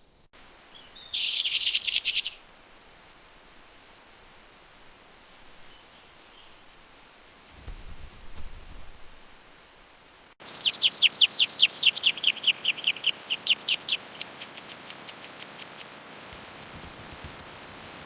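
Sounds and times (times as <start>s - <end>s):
songbird trilling: 0.0s - 2.4s, 10.4s - 15.9s.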